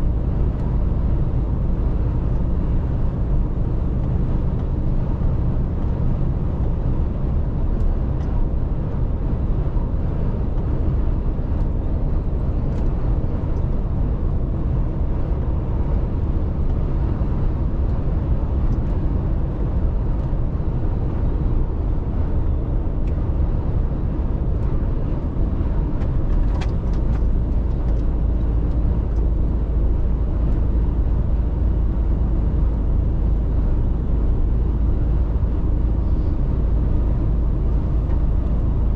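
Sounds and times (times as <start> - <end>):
truck engine and road rumble: 0.0 - 38.9.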